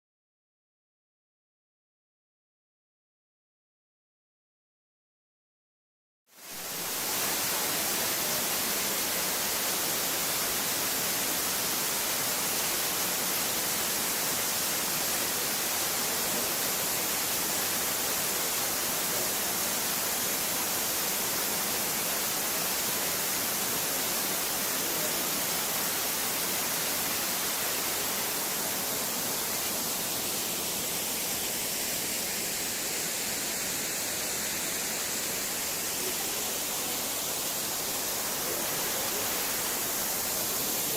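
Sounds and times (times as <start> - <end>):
waterfall rushing: 6.4 - 40.9.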